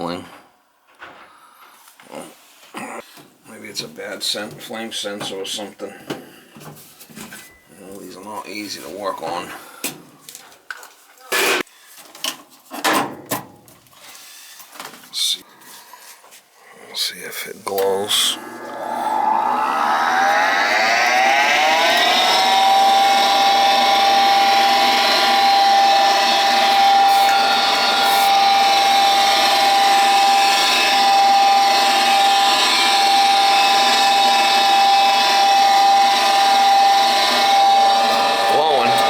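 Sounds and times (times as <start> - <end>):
furnace motor whining: 17.7 - 39.0.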